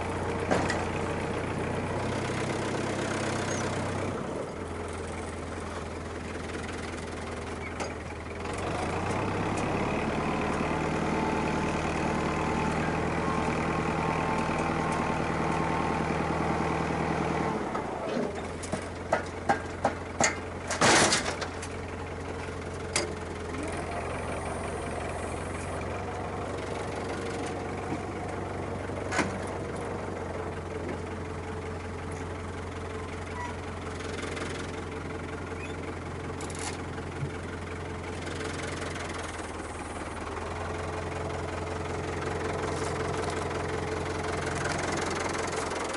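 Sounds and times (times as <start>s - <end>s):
tractor diesel engine revving: 0.0s - 45.9s
sharp knocks and clanks: 18.5s - 21.7s.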